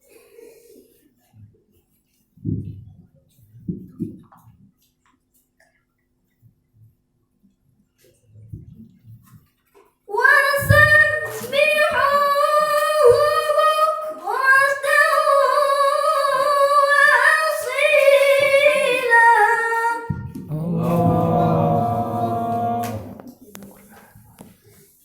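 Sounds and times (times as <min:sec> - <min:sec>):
woman reciting melodically: 0:10.1 - 0:23.3.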